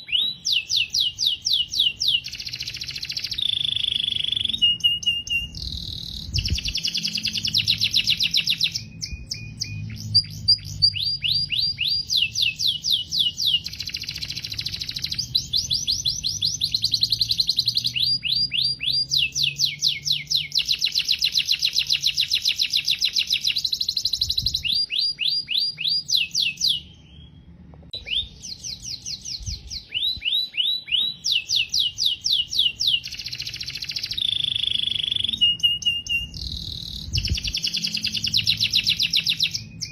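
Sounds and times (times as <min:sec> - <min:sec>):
canary singing trilled song: 0:00.0 - 0:39.9.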